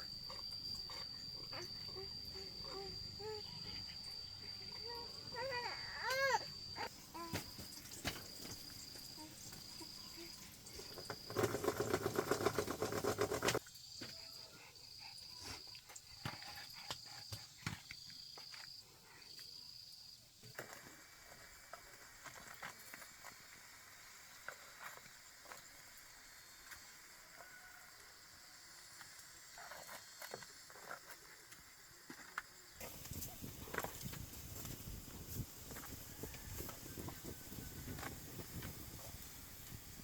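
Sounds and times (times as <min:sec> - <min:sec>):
insect chirping: 0:00.0 - 0:40.0
rapid clatter: 0:11.3 - 0:13.6.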